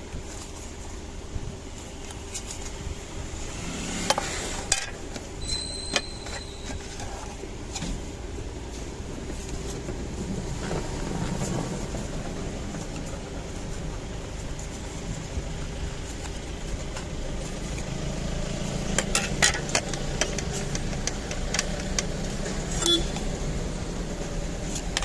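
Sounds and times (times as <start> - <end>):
small tools clicking: 18.9 - 23.3.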